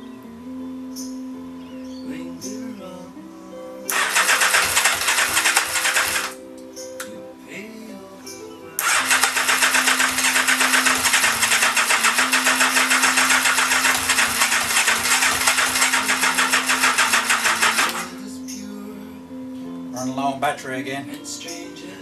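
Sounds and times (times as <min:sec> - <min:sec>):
motorcycle starter cranking: 0:03.9 - 0:06.4, 0:08.8 - 0:18.2.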